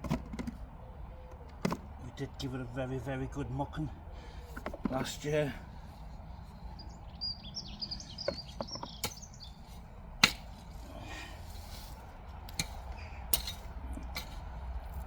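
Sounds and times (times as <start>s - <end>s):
bird chirping: 6.5s - 9.8s
digging tool striking soil: 8.3s - 15.0s.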